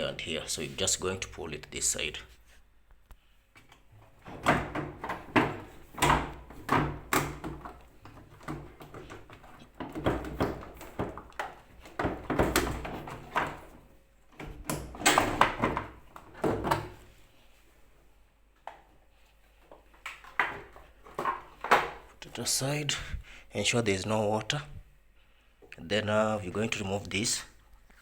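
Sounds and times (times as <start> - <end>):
plastic housing knocking and rattling: 4.2 - 13.8, 14.4 - 17.0.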